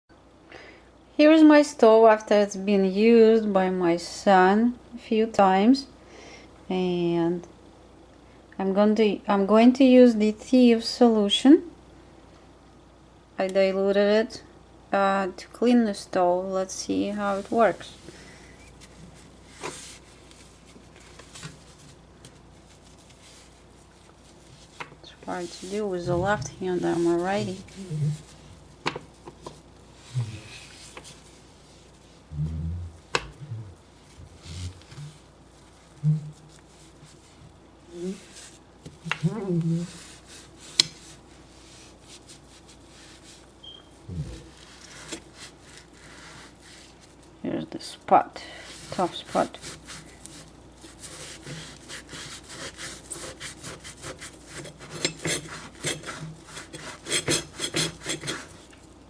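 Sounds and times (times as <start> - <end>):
scrubbing and wiping on stovetop: 16.9 - 59.0.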